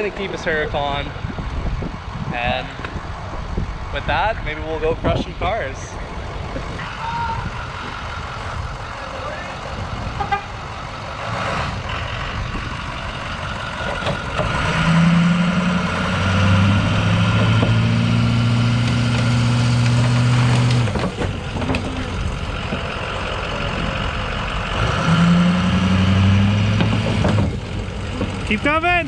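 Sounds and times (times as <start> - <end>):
monster truck engine running: 6.2 - 29.0.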